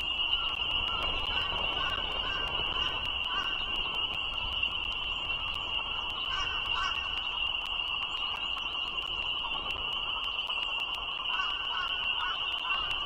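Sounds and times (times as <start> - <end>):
frogs calling in chorus: 0.3 - 4.6, 5.2 - 8.8, 11.0 - 13.0.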